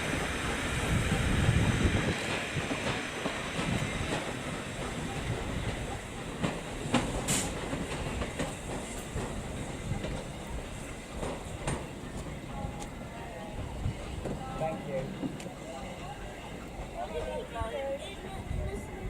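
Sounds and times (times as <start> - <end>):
train wheels clicking over rail joints: 0.0 - 13.0
train rumble: 0.0 - 19.0.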